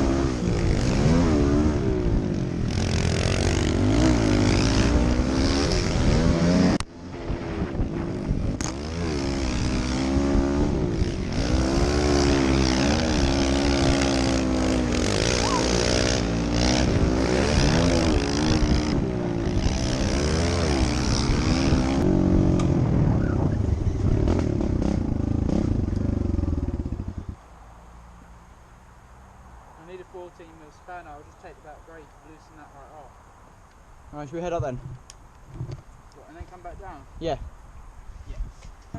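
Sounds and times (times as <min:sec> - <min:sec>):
motorbike engine revving: 0:00.0 - 0:27.4.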